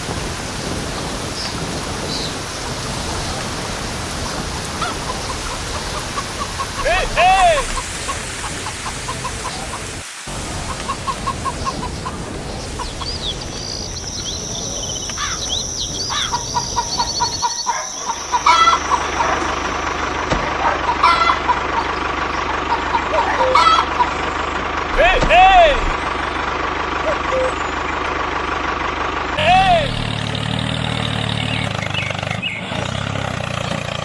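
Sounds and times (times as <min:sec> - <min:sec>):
birds chirping: 0:00.5 - 0:26.5, 0:31.2 - 0:32.9
chickens clucking: 0:03.1 - 0:26.0.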